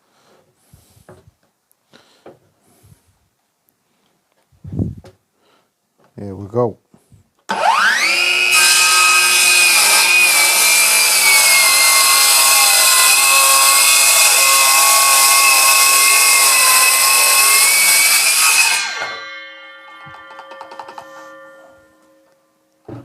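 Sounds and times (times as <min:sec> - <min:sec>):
saw blade winding down: 0:07.5 - 0:22.3
circular saw cutting wood: 0:07.5 - 0:22.4.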